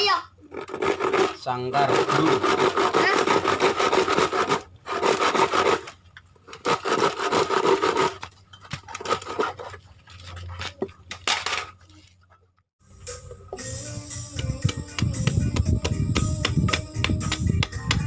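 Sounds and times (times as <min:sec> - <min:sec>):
hand tool rubbing on wood: 0:00.7 - 0:05.8.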